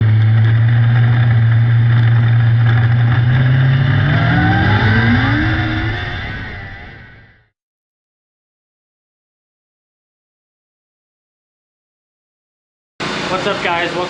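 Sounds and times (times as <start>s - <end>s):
small race car engine revving: 0.0s - 7.4s.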